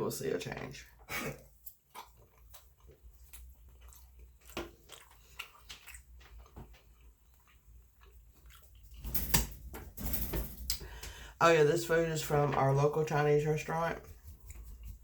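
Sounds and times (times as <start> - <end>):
person chewing food: 0.9 - 9.0, 14.1 - 15.0
wet mouth clicks and smacks: 1.4 - 7.4.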